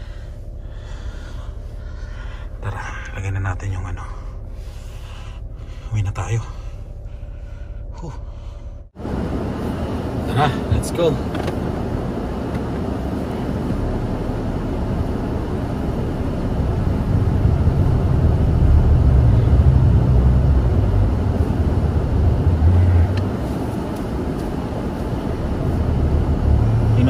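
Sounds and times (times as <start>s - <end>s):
car engine driving: 0.0s - 27.0s
heater fan blowing: 8.9s - 27.0s.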